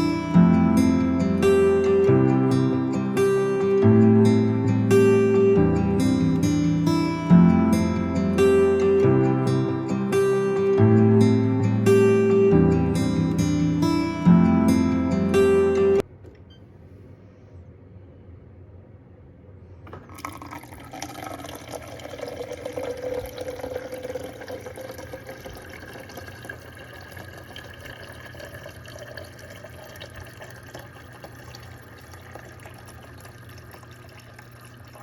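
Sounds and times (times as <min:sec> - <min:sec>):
water pouring: 0:19.9 - 0:35.0.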